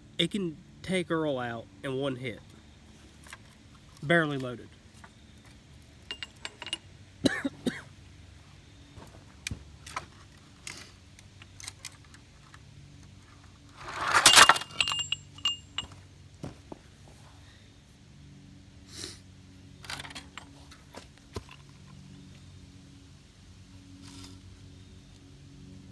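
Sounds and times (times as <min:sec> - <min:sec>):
jangling clatter: 0:05.9 - 0:07.0, 0:09.8 - 0:16.1, 0:19.8 - 0:20.9
hard objects clicking and clinking: 0:06.0 - 0:06.9, 0:13.8 - 0:16.0.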